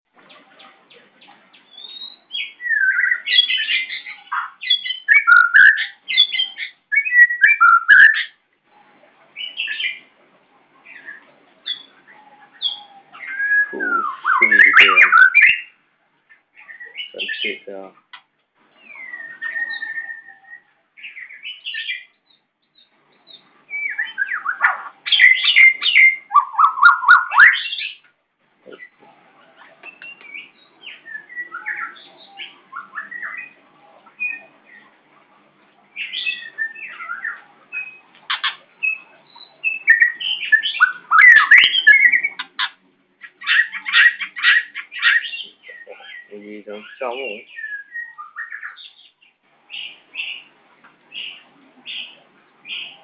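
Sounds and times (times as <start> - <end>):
bird singing whistled phrases: 1.7 - 8.4, 12.6 - 15.8, 18.8 - 22.1, 22.8 - 28.0, 38.8 - 42.5, 43.5 - 49.2.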